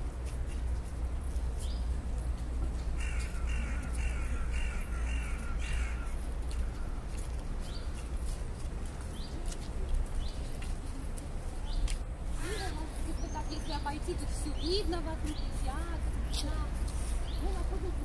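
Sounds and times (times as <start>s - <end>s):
bird giving harsh calls: 3.0s - 6.2s.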